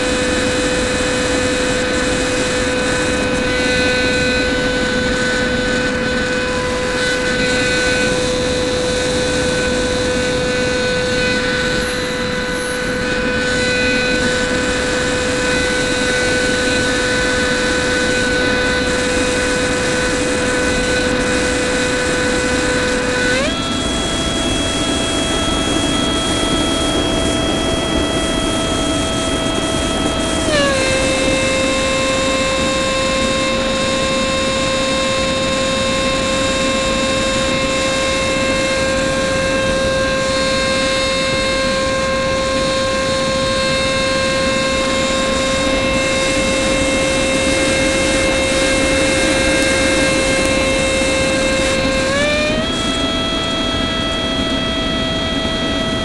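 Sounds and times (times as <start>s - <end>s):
electric fan high whine: 0.0s - 56.0s
rushing air: 0.0s - 56.0s.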